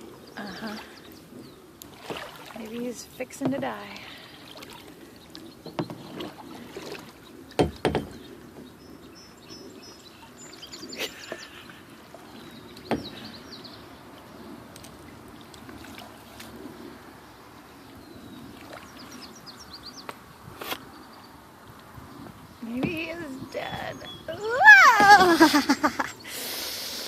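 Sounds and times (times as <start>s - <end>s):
faint water noise: 0.0s - 27.0s
hollow knocks on kayak hull: 5.6s - 6.4s, 7.6s - 8.3s, 12.8s - 13.2s.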